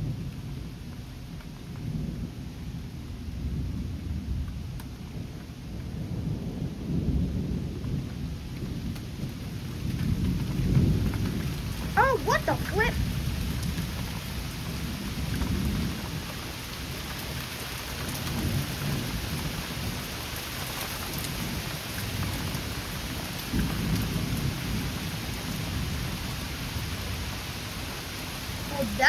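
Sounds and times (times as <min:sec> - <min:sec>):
thunder rumbling: 0:00.0 - 0:17.4, 0:21.2 - 0:29.0
heavy rain falling: 0:00.0 - 0:29.0.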